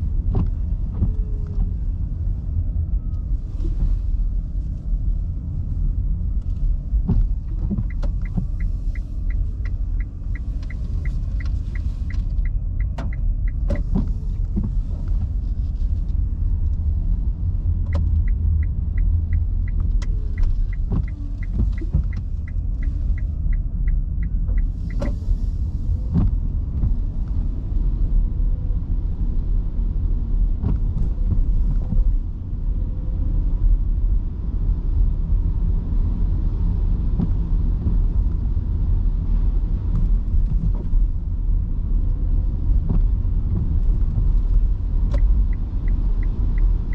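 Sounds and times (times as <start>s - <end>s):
road and tyre rumble: 0.0s - 46.9s
turn signal ticking: 5.6s - 15.4s, 16.1s - 28.0s, 42.1s - 46.9s.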